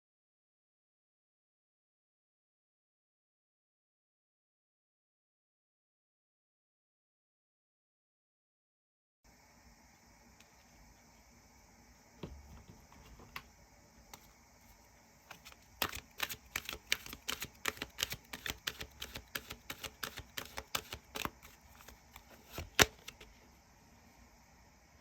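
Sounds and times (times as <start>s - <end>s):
tarot cards clicking: 15.3s - 23.3s.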